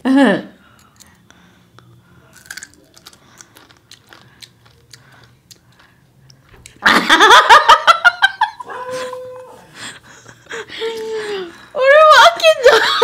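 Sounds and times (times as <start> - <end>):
crisp crunching of chewing: 0.8 - 6.8
women laughing loudly: 6.8 - 13.0.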